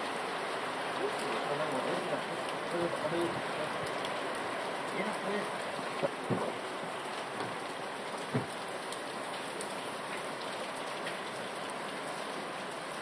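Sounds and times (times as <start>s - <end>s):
rain on pavement and car: 0.0s - 13.0s
short dull thump: 6.0s - 6.6s, 8.3s - 8.6s.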